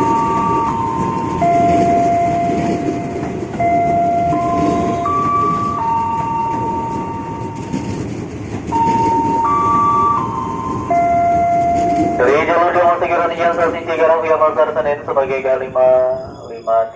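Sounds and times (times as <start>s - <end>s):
electronic station chime: 0.0s - 8.0s, 8.7s - 12.9s
train rumbling: 0.0s - 16.9s.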